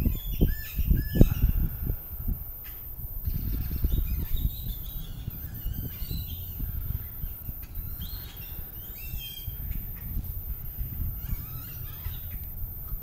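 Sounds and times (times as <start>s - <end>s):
birds chirping: 0.0s - 13.0s
wind rumbling on microphone: 0.0s - 13.0s.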